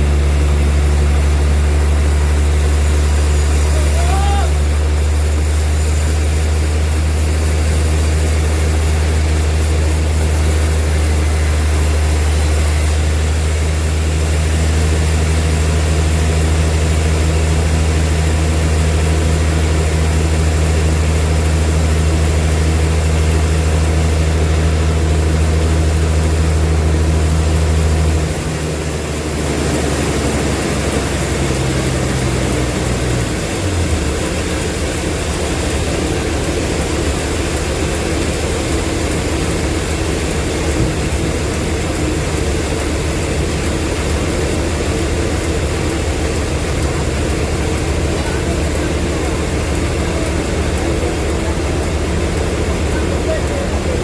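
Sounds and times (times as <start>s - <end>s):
higher machine tone: 0.0s - 9.0s
sawmill machinery humming: 0.0s - 54.0s.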